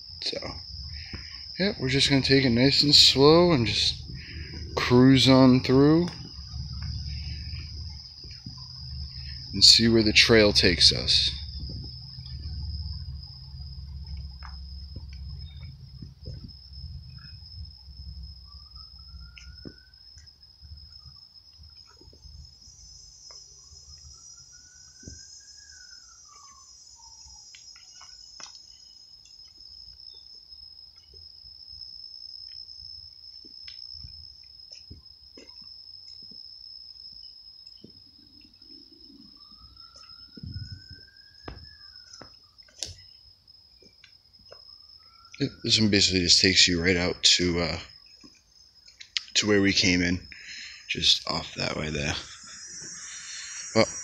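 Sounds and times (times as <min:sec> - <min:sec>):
crickets chirring: 0:00.0 - 0:54.0
low rumble: 0:02.5 - 0:19.7
footsteps on woodland path: 0:33.2 - 0:36.5.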